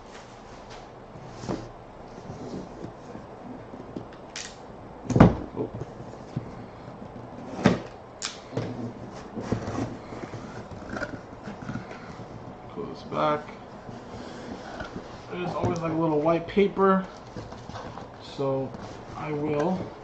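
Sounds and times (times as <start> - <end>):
cardboard box knocks and scrapes: 8.6 - 12.4.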